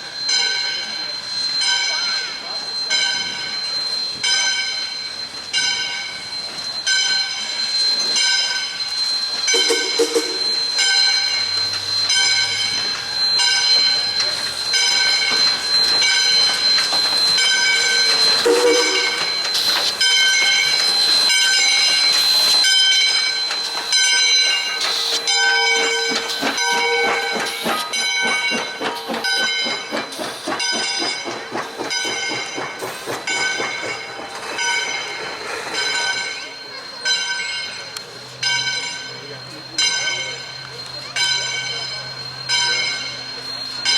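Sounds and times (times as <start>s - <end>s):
locomotive bell ringing: 0.0s - 43.9s
steam locomotive exhaust chuffs: 7.4s - 43.9s
steam hissing: 8.7s - 37.0s.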